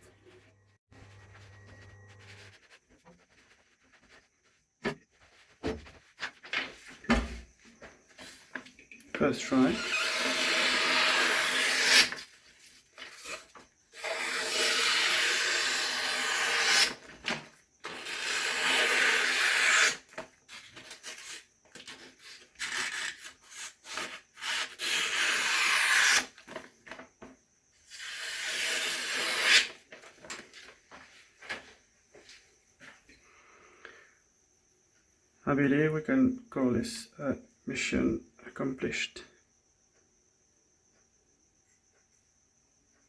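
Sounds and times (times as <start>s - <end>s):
blade rasping through material: 9.5s - 12.3s, 13.0s - 26.6s, 27.8s - 29.8s.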